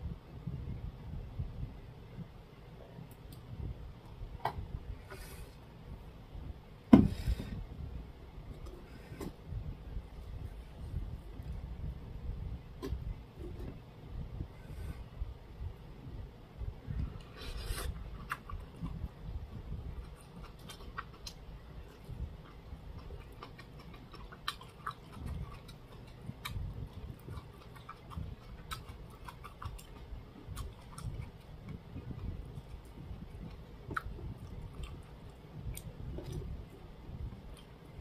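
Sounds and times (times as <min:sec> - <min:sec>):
person chewing food: 0:17.0 - 0:38.0.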